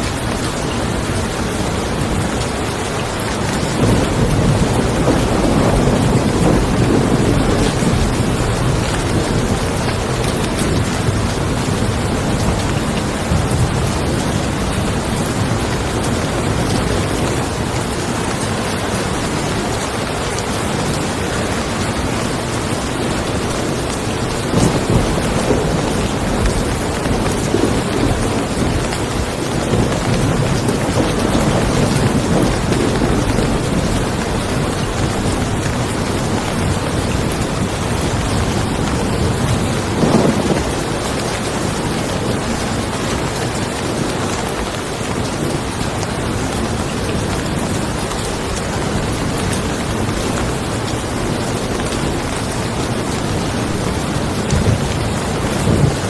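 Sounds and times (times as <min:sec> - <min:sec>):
rain falling on a car: 0:00.0 - 0:56.0
thunder rumbling: 0:00.0 - 0:56.0.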